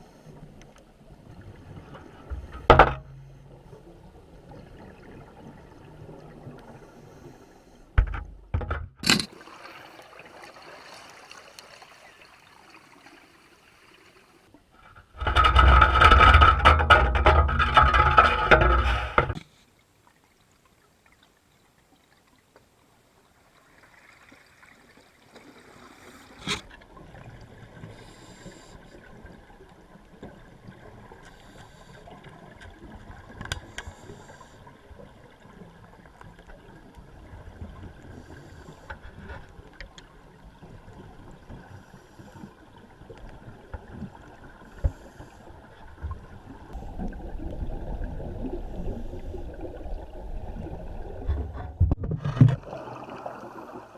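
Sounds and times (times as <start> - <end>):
underwater rumble: 0.0 - 8.6, 26.7 - 53.9.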